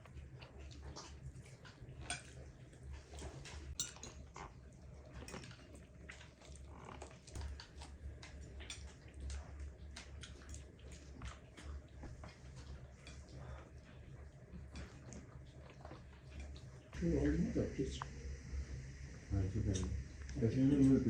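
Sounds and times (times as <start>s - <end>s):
low steady hum: 0.0s - 21.0s
dishes and cutlery clinking: 2.0s - 2.4s, 3.2s - 4.6s.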